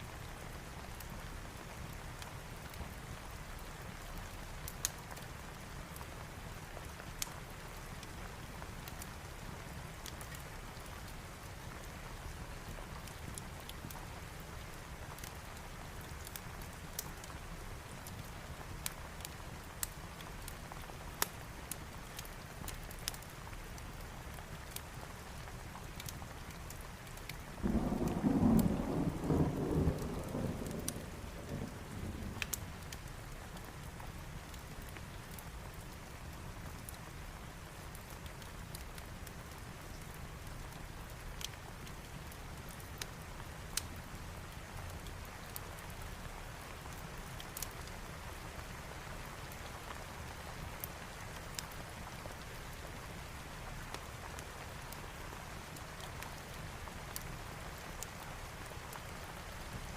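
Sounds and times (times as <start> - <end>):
steady rain: 0.0 - 59.9
wood fire crackling: 0.2 - 59.9
thunder rumbling: 27.6 - 32.4.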